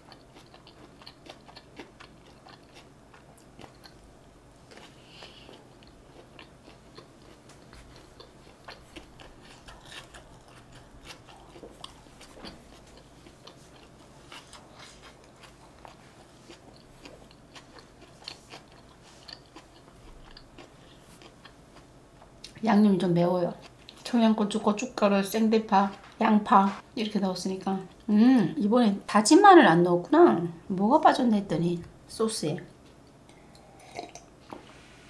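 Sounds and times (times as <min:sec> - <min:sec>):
quiet chewing: 0:00.0 - 0:22.6, 0:23.5 - 0:24.6.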